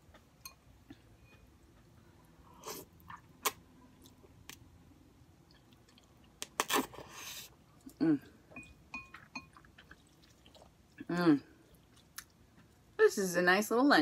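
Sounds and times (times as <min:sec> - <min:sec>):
person chewing noodles: 0:05.4 - 0:08.4, 0:09.0 - 0:13.0.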